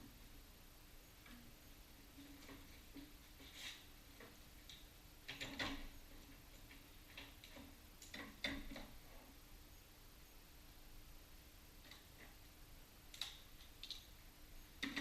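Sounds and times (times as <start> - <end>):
faint low hum: 0.0 - 15.0
faint clicks and light knocks: 1.1 - 9.3, 11.8 - 12.5.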